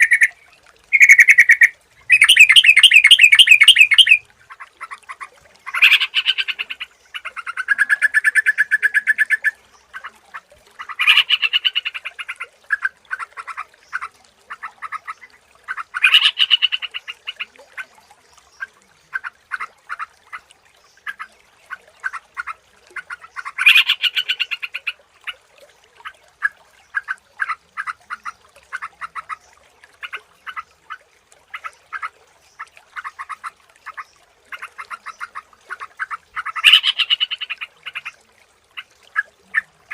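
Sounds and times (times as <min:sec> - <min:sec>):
bird chattering notes: 0:00.0 - 0:00.3, 0:00.9 - 0:04.2
bird singing bubbly phrases: 0:00.0 - 0:39.9.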